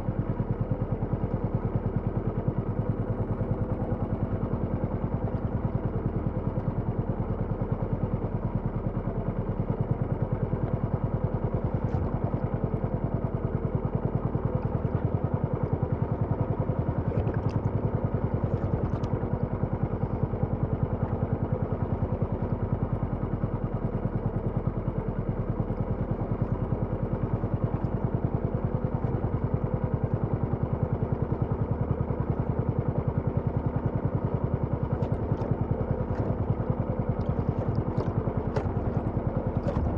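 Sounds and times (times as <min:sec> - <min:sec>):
small engine running: 0:26.1 - 0:39.9.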